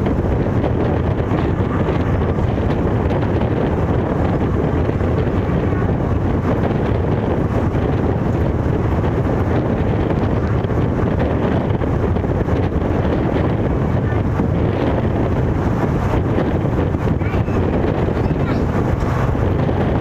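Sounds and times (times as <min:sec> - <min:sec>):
train rumbling: 0:00.0 - 0:20.0
wind buffeting microphone: 0:00.0 - 0:20.0.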